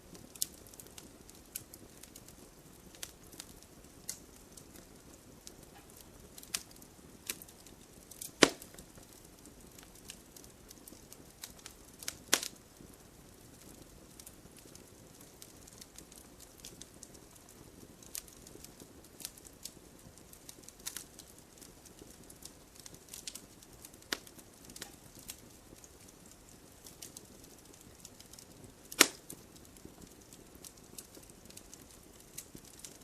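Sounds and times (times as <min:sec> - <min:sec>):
low steady hiss: 0:00.0 - 0:33.0
wood fire crackling: 0:00.0 - 0:33.0
loud wood snaps: 0:08.2 - 0:08.9, 0:12.3 - 0:12.5, 0:28.9 - 0:29.3.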